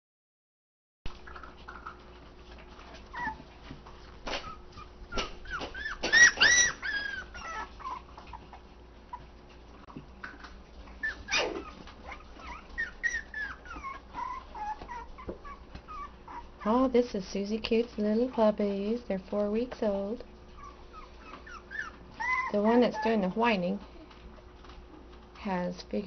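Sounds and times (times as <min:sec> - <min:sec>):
puppies whining and whimpering: 0:01.2 - 0:16.9, 0:20.3 - 0:25.1.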